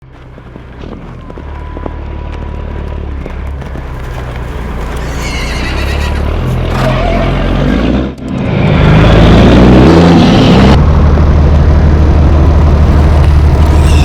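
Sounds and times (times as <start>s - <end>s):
horse neighing: 5.0s - 7.3s
low steady rumble: 10.7s - 14.0s.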